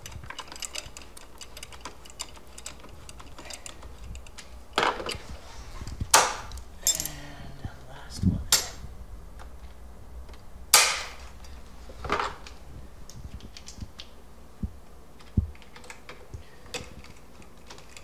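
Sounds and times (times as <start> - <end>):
tools clicking on metal bolts: 0.0 - 5.2, 6.2 - 7.2.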